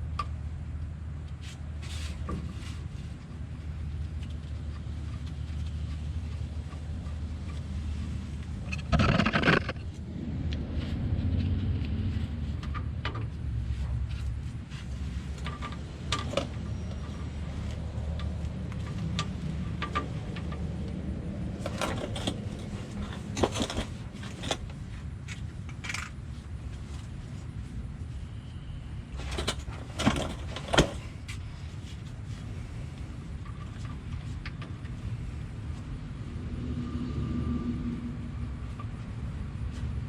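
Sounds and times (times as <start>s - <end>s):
low rumble: 8.0s - 15.1s, 35.0s - 40.0s
metal tools clinking and scraping: 21.6s - 26.2s, 29.2s - 31.2s.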